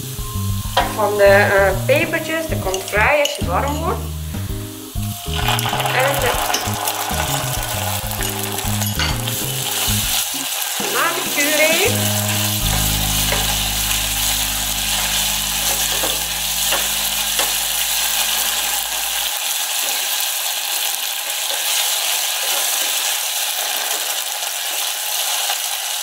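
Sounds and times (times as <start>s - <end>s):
sizzling in hot oil: 0.0s - 26.0s
wooden spoon stirring: 5.3s - 13.6s
low held tone: 12.0s - 19.3s.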